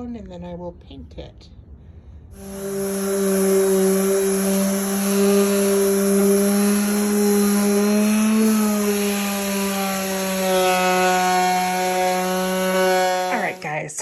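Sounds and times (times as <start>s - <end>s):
electric sander on wood: 2.4s - 13.8s.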